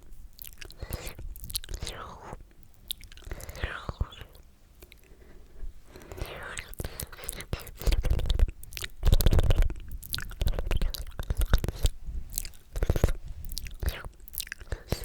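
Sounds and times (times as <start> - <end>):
wet mouth clicks and pops: 6.0 - 15.0.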